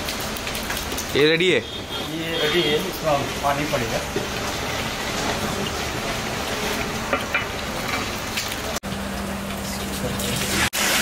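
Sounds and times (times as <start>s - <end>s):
paste sizzling in oil: 9.7s - 11.0s.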